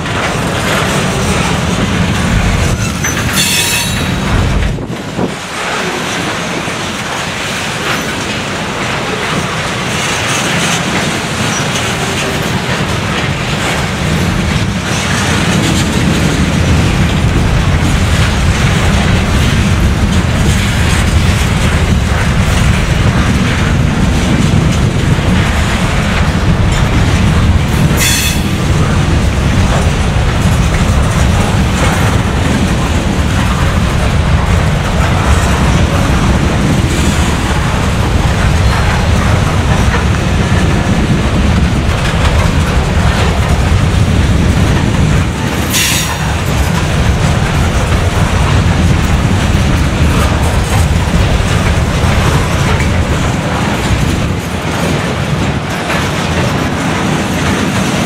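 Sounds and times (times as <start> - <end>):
train wheels rumbling over rail joints: 0.0 - 58.0
high wheel squeal: 2.8 - 4.2.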